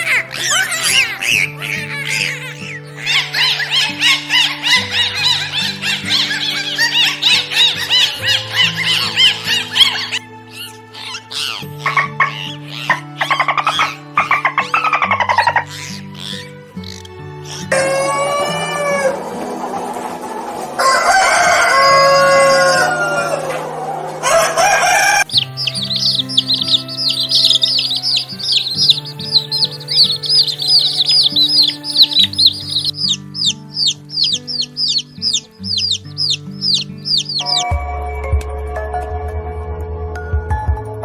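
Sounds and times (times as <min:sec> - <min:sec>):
rapid high peeping chirps: 0:00.0 - 0:17.8, 0:24.1 - 0:37.8
background music: 0:00.0 - 0:41.0
rooster crowing: 0:03.0 - 0:10.7, 0:17.7 - 0:37.6.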